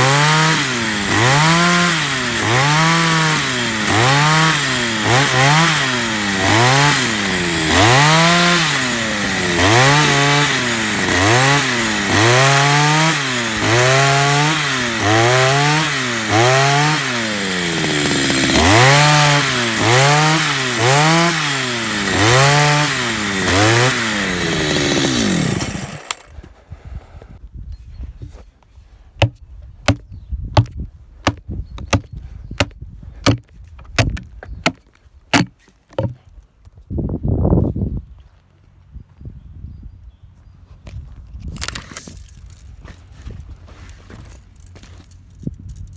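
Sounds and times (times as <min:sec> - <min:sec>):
chainsaw cutting log: 0:00.0 - 0:26.5, 0:29.2 - 0:30.0, 0:30.6 - 0:36.2
sharp irregular knocks: 0:29.2 - 0:30.0, 0:30.6 - 0:36.2.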